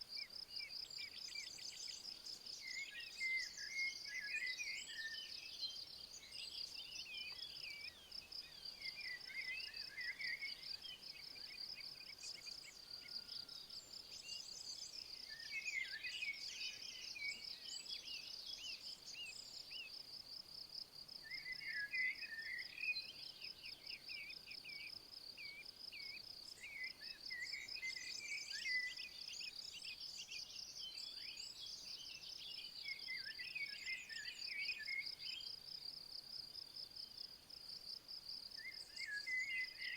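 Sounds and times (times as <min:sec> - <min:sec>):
songbirds twittering: 0:00.0 - 0:20.0, 0:21.2 - 0:37.3.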